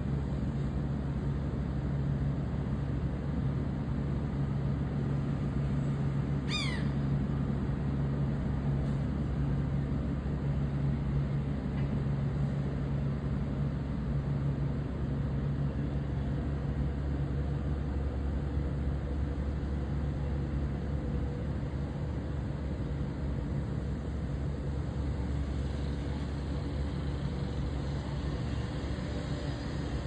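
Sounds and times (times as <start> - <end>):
short falling bird call: 6.5 - 7.0
low mechanical drone: 20.8 - 30.0.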